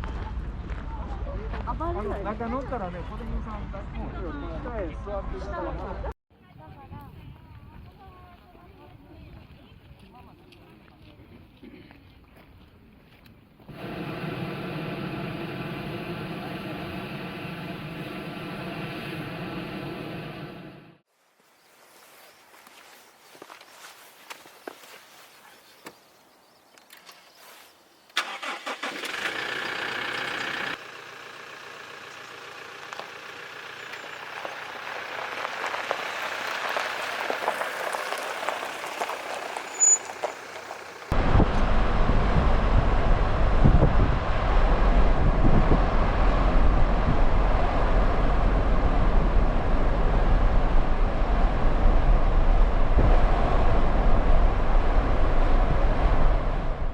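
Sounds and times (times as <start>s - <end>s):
road and wind noise: 0.0s - 56.9s
car driving rumble: 13.7s - 21.0s, 28.2s - 56.9s
car engine starting and running: 13.7s - 21.0s, 28.2s - 56.9s.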